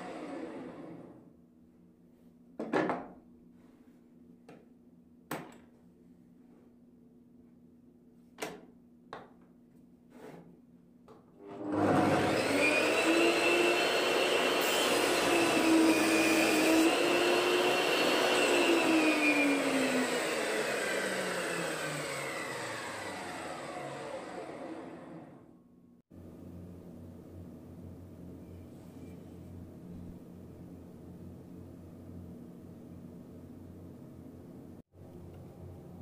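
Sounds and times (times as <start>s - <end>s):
saw winding down whine: 0.0s - 1.2s, 11.5s - 25.5s
table saw running and cutting wood: 0.0s - 1.2s, 11.4s - 25.4s.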